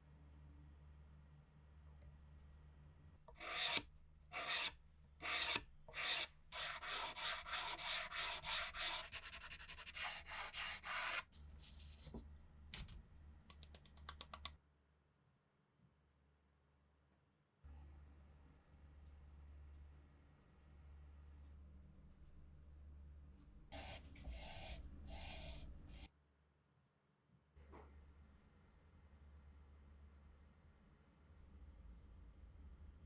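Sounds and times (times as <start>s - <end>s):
abrasive rubbing on metal part: 3.4s - 3.8s, 4.4s - 11.2s.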